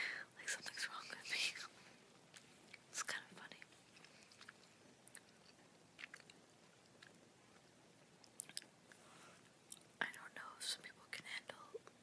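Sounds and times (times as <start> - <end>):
wet mouth chewing clicks and smacks: 4.0 - 7.2, 8.2 - 8.7.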